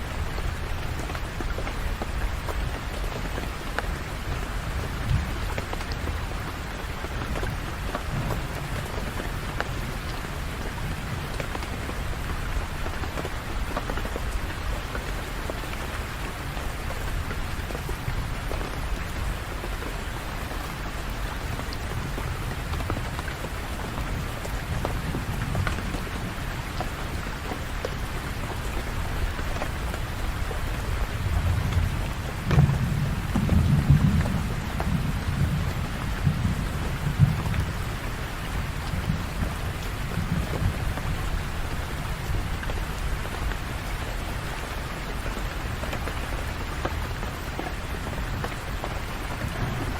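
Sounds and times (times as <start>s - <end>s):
rain pattering: 0.0s - 49.9s
low thunder rolling: 31.2s - 37.9s, 49.4s - 49.9s.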